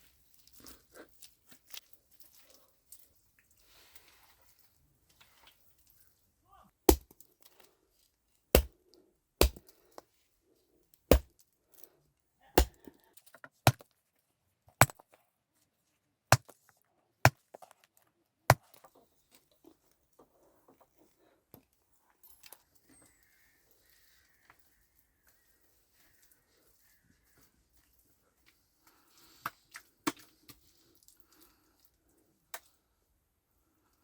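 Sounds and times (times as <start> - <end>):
axe chopping wood: 6.9 - 7.2, 8.6 - 8.8, 9.4 - 9.7, 11.1 - 11.3, 12.6 - 12.8.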